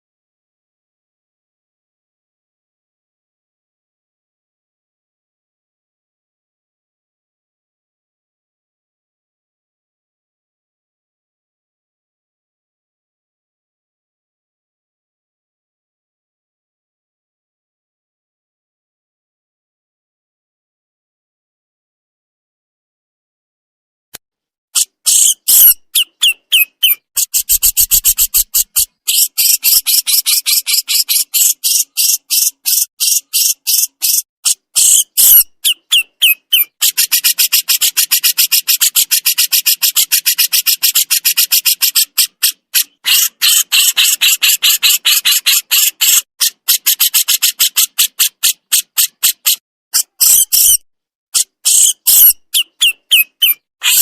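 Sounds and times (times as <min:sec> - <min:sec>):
songbird harsh chatter: 0:24.8 - 0:50.8, 0:51.4 - 0:54.0.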